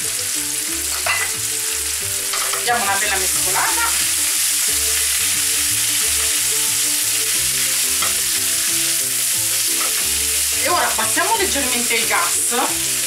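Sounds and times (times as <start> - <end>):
background music: 0.0 - 13.0
vegetables sizzling in a frying pan: 0.0 - 13.0
spatula stirring: 4.4 - 11.0.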